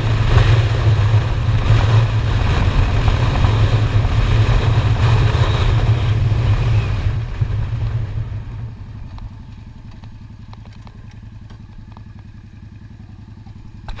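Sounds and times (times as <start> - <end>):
wind rush: 0.0 - 9.1
motorcycle engine idling: 0.0 - 14.0.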